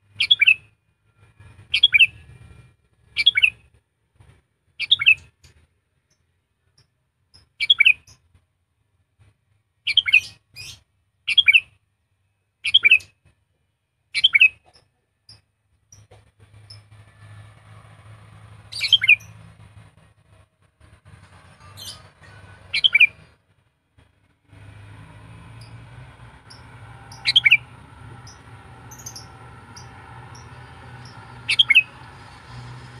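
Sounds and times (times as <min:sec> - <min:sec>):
bulbul chirping calls: 0:18.7 - 0:19.3, 0:22.7 - 0:23.1, 0:26.5 - 0:31.9.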